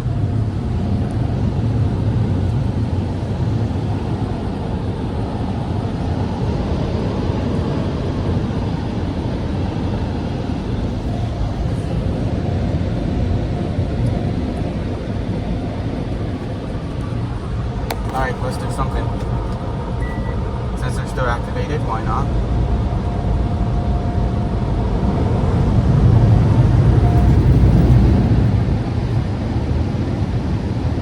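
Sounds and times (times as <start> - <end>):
blower dryers rushing air: 0.0 - 31.0.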